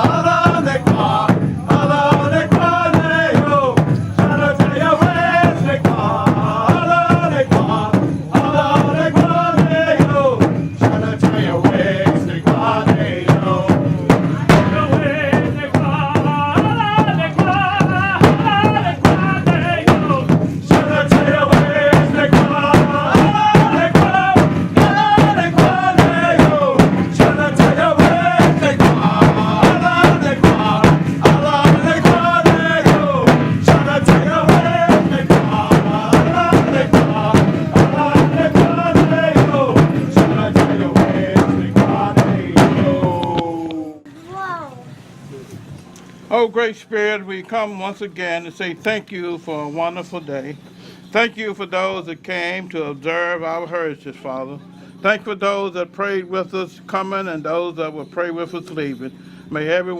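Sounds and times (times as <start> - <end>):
large drum steady beat: 0.0 - 44.1
voices singing a chant: 0.0 - 44.1.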